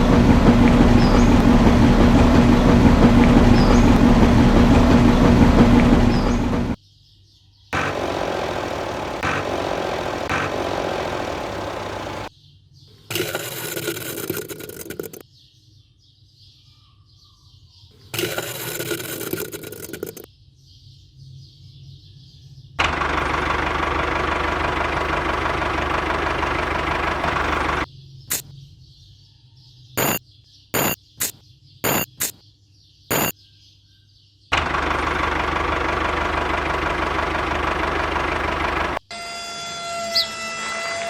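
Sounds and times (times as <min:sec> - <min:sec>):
small engine running: 0:00.0 - 0:06.8, 0:07.8 - 0:12.3, 0:22.8 - 0:27.9, 0:34.5 - 0:41.0.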